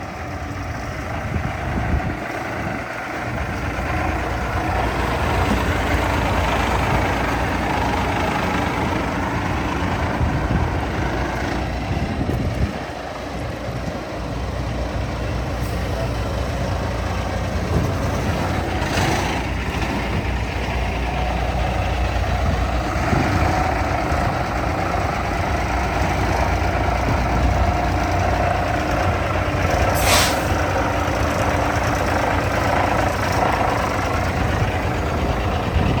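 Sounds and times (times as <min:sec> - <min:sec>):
diesel truck engine running: 0:00.0 - 0:36.0
air brake hiss: 0:29.9 - 0:30.6.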